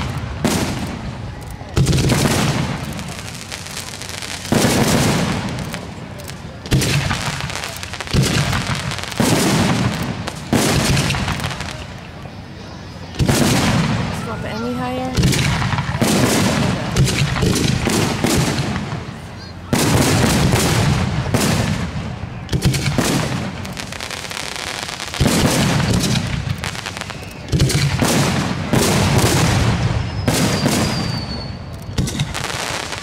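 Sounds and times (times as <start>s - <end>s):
fireworks booming and crackling: 0.0s - 33.0s
high firework whistle: 26.0s - 28.1s, 28.9s - 33.0s.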